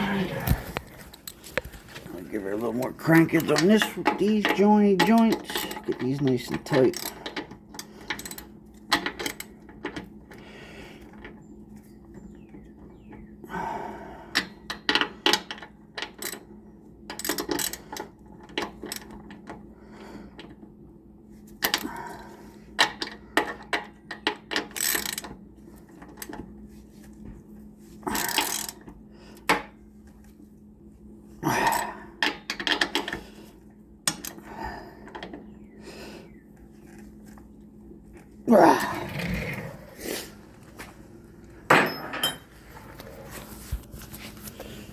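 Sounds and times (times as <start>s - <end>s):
metal tools clinking: 3.0s - 7.2s, 41.7s - 43.2s.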